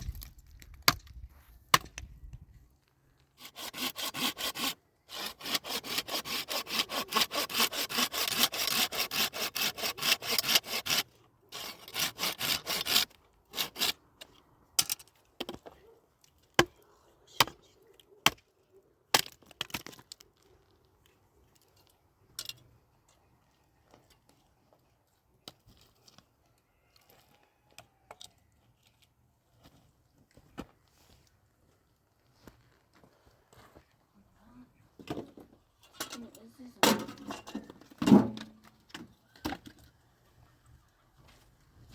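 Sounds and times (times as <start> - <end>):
hand saw cutting wood: 3.4 - 14.0.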